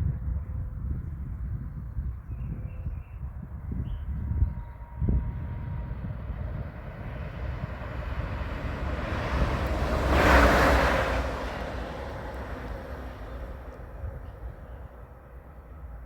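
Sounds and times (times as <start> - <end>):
wind rumble on microphone: 0.0 - 16.0
train passing by: 3.6 - 16.0.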